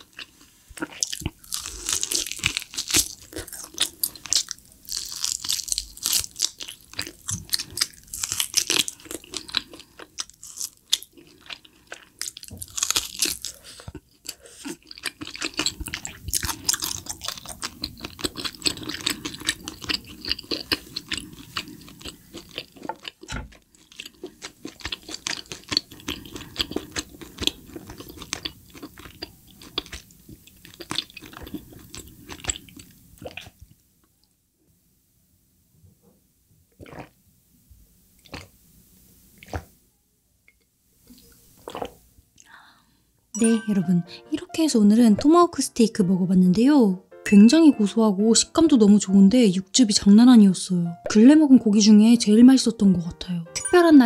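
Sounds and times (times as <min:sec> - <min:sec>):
person biting and chewing meat: 0:00.0 - 0:33.6.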